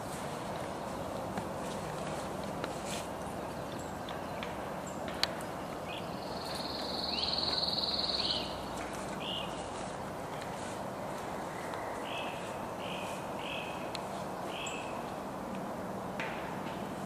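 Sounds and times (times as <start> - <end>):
steady background noise: 0.0 - 17.0
songbird trilling: 5.8 - 9.6.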